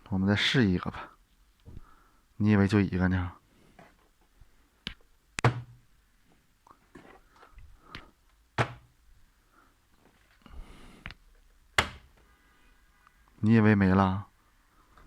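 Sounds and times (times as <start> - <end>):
hard objects knocking and thudding: 4.9 - 5.8, 8.0 - 8.9, 11.8 - 12.2.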